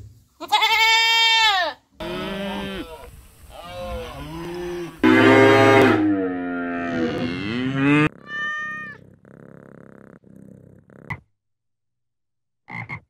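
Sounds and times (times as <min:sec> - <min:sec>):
cattle mooing: 0:02.0 - 0:03.1, 0:03.7 - 0:09.0
cat meow: 0:08.2 - 0:09.0.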